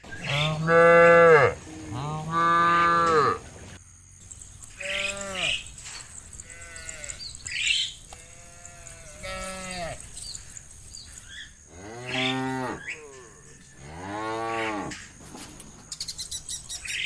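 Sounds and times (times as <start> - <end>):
cattle mooing: 0.3 - 3.4, 4.6 - 15.1.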